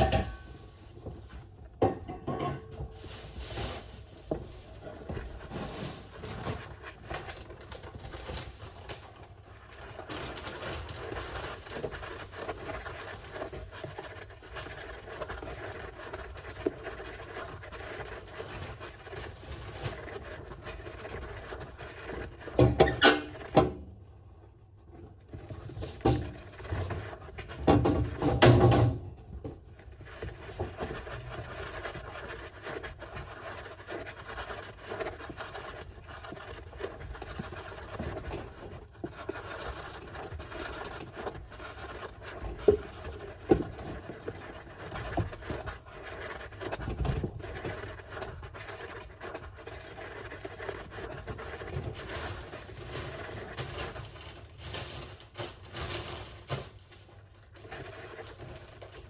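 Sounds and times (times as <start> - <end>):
hamster scratching and scraping: 0.0 - 23.9, 24.8 - 59.0.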